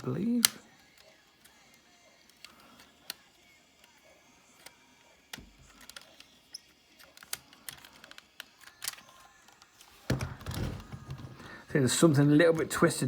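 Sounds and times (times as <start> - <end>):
plastic toy parts clicking: 4.6 - 9.7
plastic rubbing and knocking: 10.0 - 11.5.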